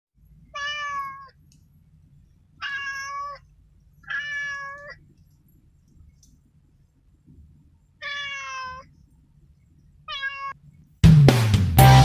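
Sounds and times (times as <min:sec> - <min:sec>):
kitten meowing: 0:00.6 - 0:01.3, 0:02.6 - 0:03.4, 0:04.0 - 0:05.0, 0:08.0 - 0:08.9, 0:10.1 - 0:10.6.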